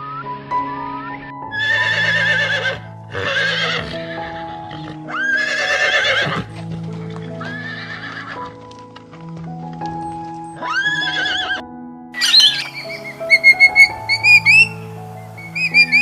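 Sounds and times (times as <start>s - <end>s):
background music with held notes: 0.0s - 16.0s
horse whinnying: 1.5s - 6.6s, 7.4s - 8.5s, 10.6s - 11.6s, 12.2s - 14.8s, 15.4s - 16.0s.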